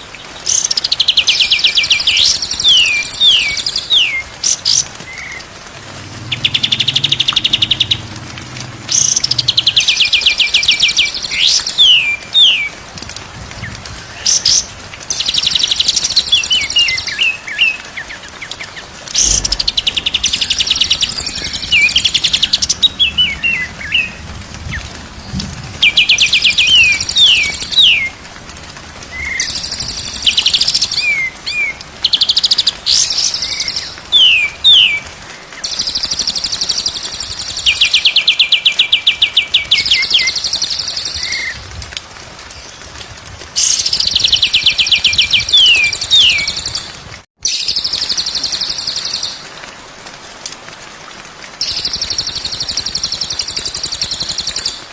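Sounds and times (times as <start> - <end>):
songbird trilling and whistling: 43.6 - 46.9.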